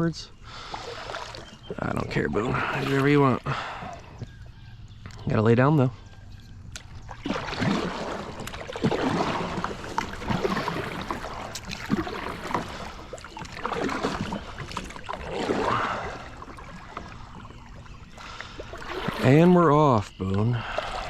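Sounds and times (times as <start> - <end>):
water sloshing and splashing: 0.0 - 21.0
swishing water surges: 0.5 - 4.2, 6.8 - 21.0
knocks and scrapes against boat: 7.2 - 15.2.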